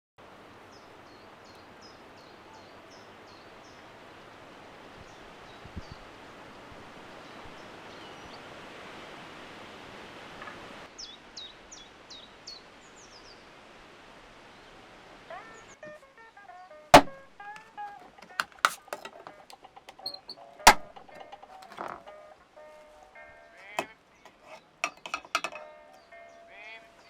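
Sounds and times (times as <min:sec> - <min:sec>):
outdoor background noise: 0:00.2 - 0:27.0
bird chirping: 0:17.2 - 0:22.2.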